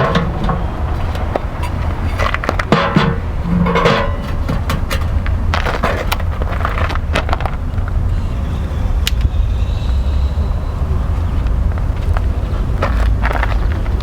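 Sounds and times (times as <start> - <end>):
logs knocking against metal stove: 0.0 - 5.3
steady low rumble: 0.0 - 14.0.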